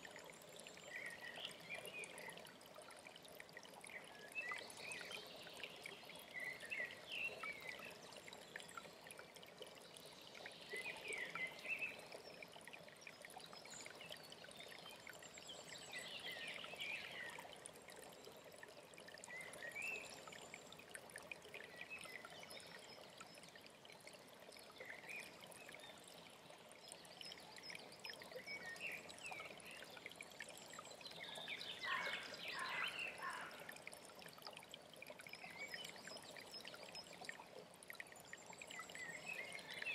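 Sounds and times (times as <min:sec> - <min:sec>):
songbirds chirping: 0:00.0 - 0:39.9
stream of water running: 0:00.0 - 0:39.9.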